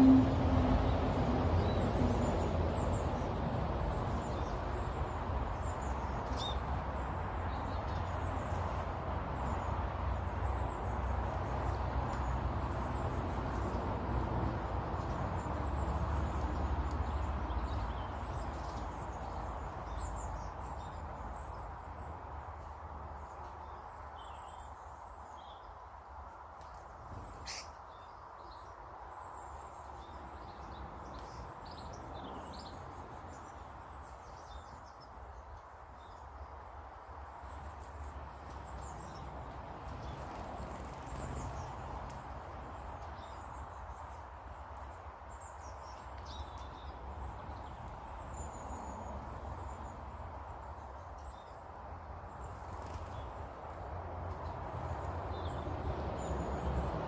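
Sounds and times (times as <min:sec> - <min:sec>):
small birds chirping: 0:01.6 - 0:13.9, 0:15.0 - 0:56.9.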